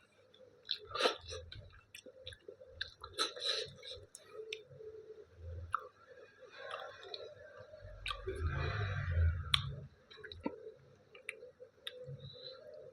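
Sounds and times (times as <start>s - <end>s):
person chewing food: 0.4s - 4.7s, 6.6s - 7.3s, 8.0s - 8.7s, 9.5s - 12.8s.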